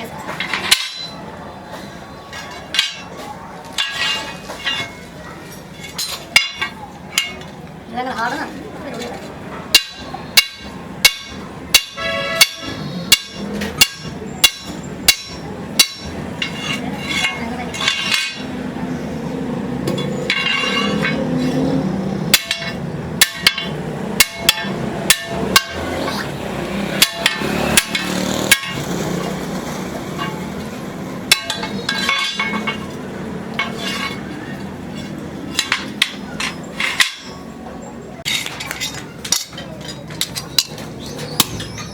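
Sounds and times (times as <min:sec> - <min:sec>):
hammer striking metal: 0:00.3 - 0:01.2, 0:02.3 - 0:05.1, 0:05.8 - 0:07.5, 0:09.7 - 0:18.7, 0:19.8 - 0:37.5.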